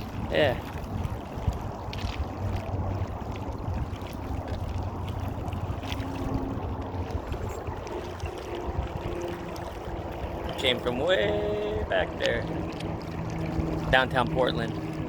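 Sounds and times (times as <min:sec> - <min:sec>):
wind noise: 0:00.0 - 0:10.6
boat engine running: 0:00.0 - 0:15.0.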